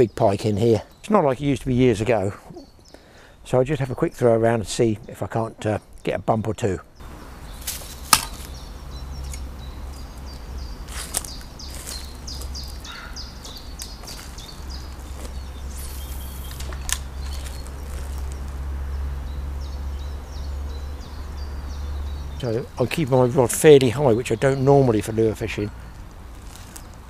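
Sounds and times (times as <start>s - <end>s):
songbirds chirping: 0.0s - 27.0s
sharp clicks: 15.8s - 18.6s.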